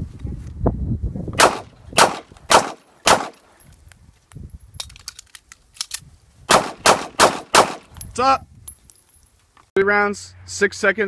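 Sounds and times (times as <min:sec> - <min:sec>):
pistol shots: 0:01.4 - 0:03.4, 0:06.5 - 0:07.9
magazine change metallic clicks: 0:04.3 - 0:08.1.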